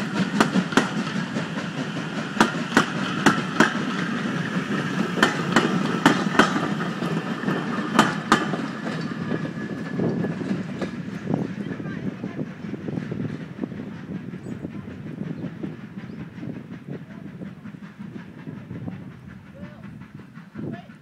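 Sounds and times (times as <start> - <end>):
wheels clicking over rail joints: 0.0 - 14.2
train rumble: 0.0 - 21.0.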